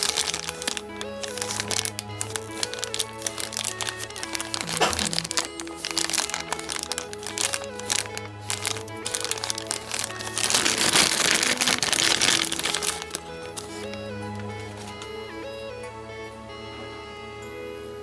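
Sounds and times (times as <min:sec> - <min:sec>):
packaging crinkling: 0:00.0 - 0:15.1
background music: 0:00.0 - 0:18.0.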